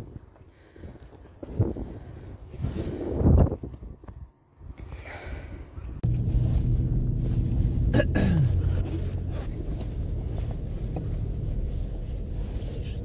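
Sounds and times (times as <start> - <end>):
car engine and road hum: 5.8 - 13.0.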